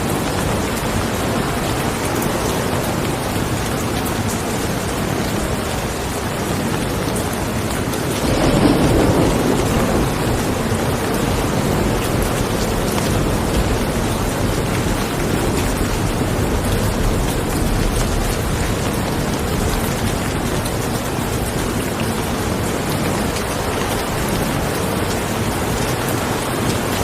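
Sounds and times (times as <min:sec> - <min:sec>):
steady rain: 0:00.0 - 0:27.0
thunder rumble: 0:08.1 - 0:21.9.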